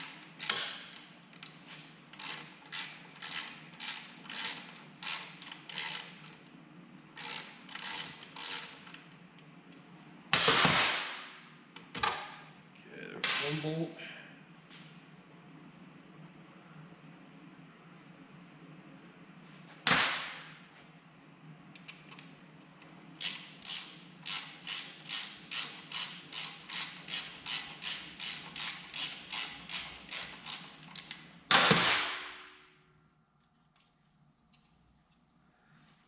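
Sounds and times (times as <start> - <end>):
socket wrench ratcheting: 2.2 - 6.2, 7.2 - 9.0, 23.2 - 31.1.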